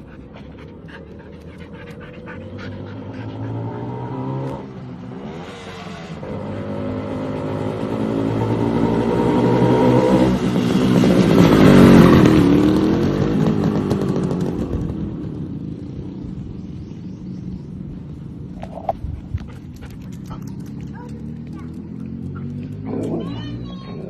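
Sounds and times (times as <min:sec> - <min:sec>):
motorcycle engine running: 0:07.4 - 0:18.9.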